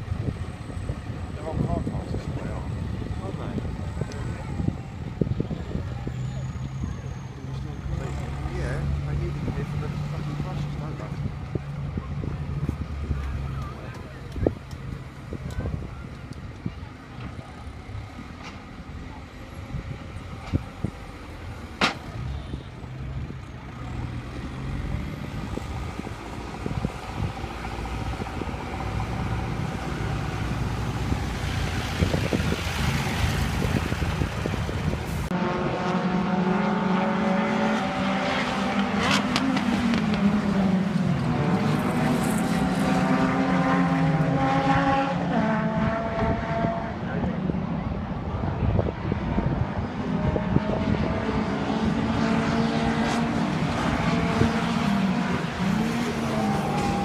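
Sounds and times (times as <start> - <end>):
racing engines rumble: 0.0 - 57.0.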